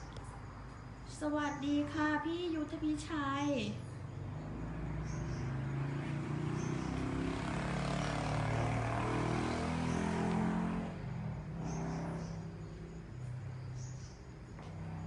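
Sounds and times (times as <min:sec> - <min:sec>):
insects chirping: 0:00.0 - 0:15.0
motor vehicle passing by: 0:03.5 - 0:15.0.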